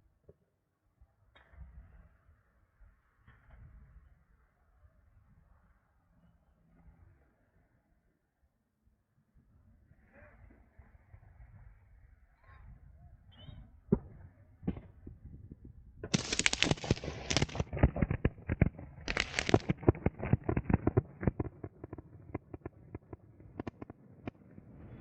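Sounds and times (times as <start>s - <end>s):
fireworks bangs and crackling: 16.1s - 24.0s.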